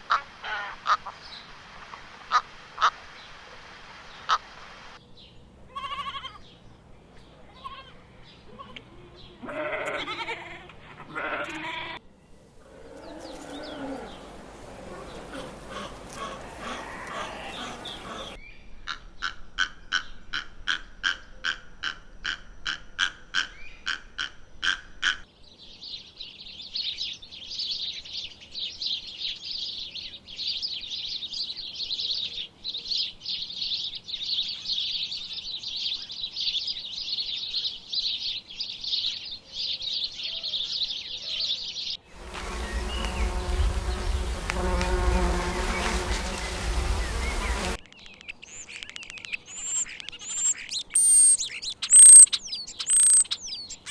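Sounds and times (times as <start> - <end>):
short pitched calls: 12.9 - 18.4, 42.1 - 47.8, 51.0 - 53.3
high insect buzzing: 42.1 - 47.8.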